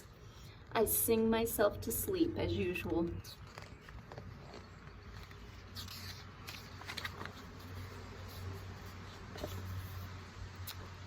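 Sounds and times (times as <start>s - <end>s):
paper pages rustling: 3.1s - 10.2s.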